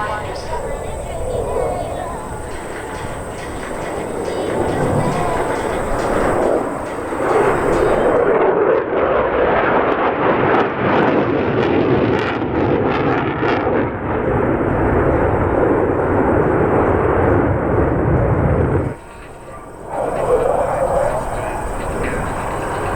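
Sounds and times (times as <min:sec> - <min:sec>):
sharp crackling: 0:00.0 - 0:08.3
jet engines roaring: 0:00.0 - 0:22.9.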